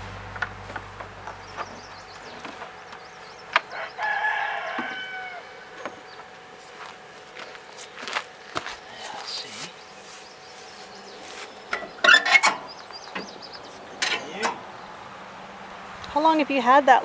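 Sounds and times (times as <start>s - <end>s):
rooster crowing: 3.6s - 6.2s
sharp clicks and knocks: 14.0s - 14.7s.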